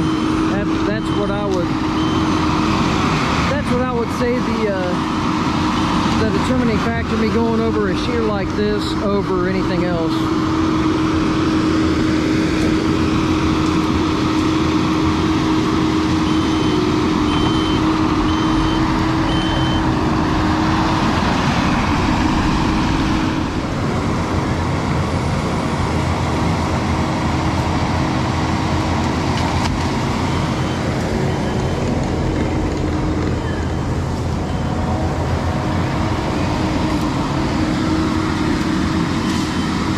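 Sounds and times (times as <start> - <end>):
hydraulic whine: 0.0 - 4.3, 8.6 - 26.8
diesel engine running hard: 0.0 - 39.9.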